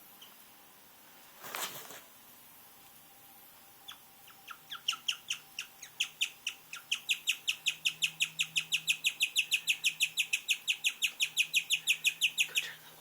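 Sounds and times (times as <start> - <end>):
guinea pig chirping: 3.8 - 12.7.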